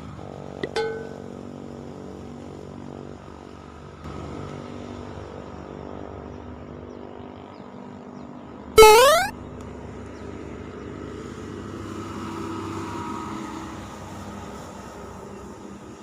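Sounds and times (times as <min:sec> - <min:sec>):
short rising tone: 0:08.8 - 0:09.3.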